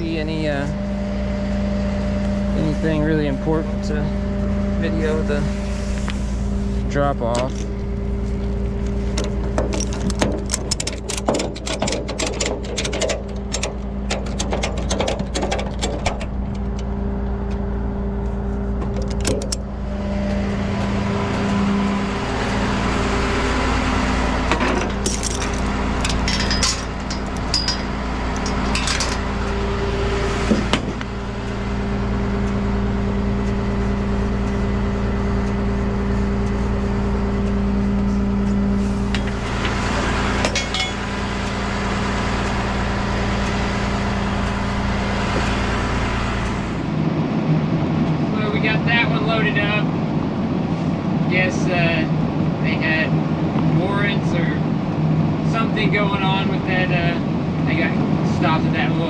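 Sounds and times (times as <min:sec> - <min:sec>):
truck engine idling: 0:00.0 - 0:47.1.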